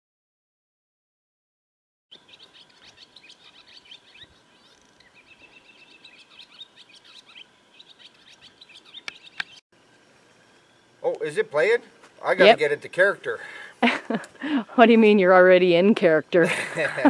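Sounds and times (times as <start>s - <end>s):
many birds chirping: 2.1s - 9.6s
faint steady tone: 9.8s - 14.8s.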